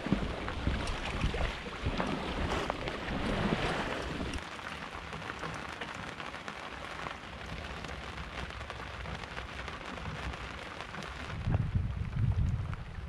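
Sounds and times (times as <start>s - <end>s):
rain tapping on fabric hood: 4.0s - 13.0s
low steady rumble: 11.2s - 13.0s.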